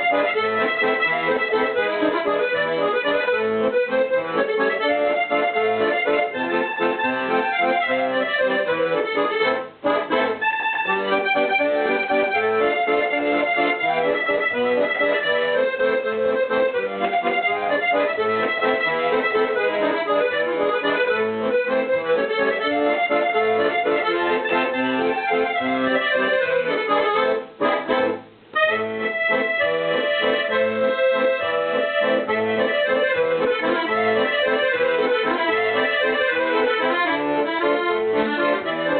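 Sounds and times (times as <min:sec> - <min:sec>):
accordion music: 0:00.0 - 0:38.9.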